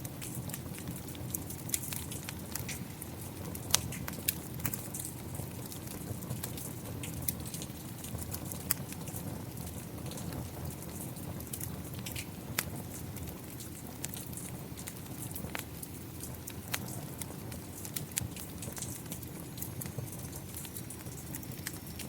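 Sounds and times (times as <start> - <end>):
rain: 0.0 - 22.0
wood fire crackling and popping: 0.0 - 22.0.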